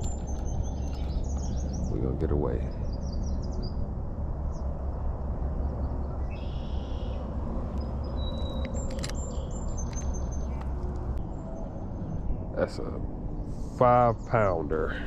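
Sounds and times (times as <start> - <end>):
birds chirping and whistling: 0.0 - 3.8, 5.8 - 10.6
steady low rumble: 0.0 - 15.0
sharp clicks: 7.7 - 11.2.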